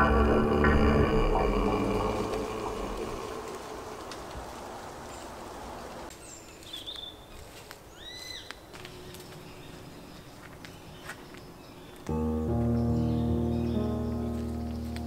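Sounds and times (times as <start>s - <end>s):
music: 0.0s - 2.6s, 12.1s - 15.0s.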